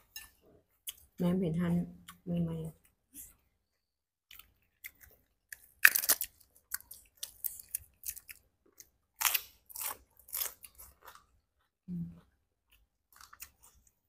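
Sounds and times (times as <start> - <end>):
biting and crunchy chewing: 4.3 - 11.8, 12.6 - 14.0.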